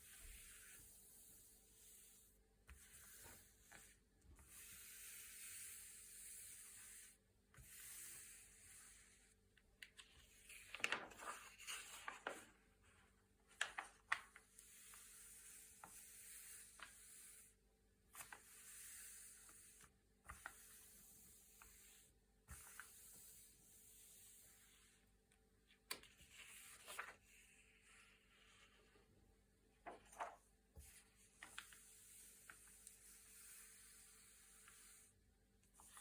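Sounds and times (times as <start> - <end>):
crinkling page turn: 9.8 - 12.6, 13.5 - 14.4, 25.9 - 27.2, 29.8 - 30.5
paper pages rubbing and sliding: 10.2 - 12.6, 26.2 - 28.7.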